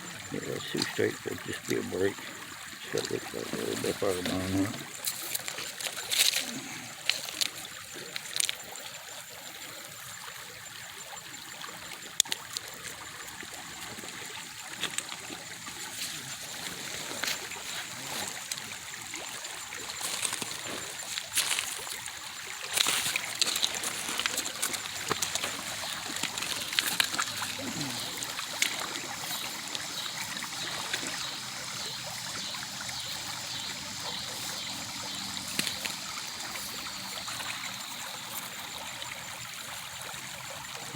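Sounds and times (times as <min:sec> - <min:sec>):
creek water trickling over gravel: 0:00.0 - 0:40.9
stones clicking and splashing: 0:02.9 - 0:08.7, 0:11.9 - 0:30.2, 0:35.4 - 0:37.6.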